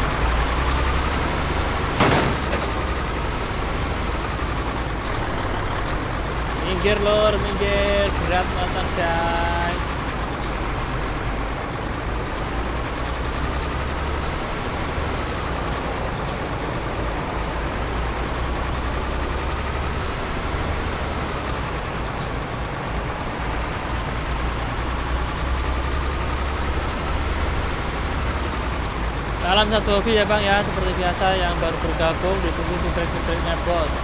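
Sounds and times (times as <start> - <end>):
road noise: 0.0 - 34.0
truck diesel engine running: 0.0 - 34.0.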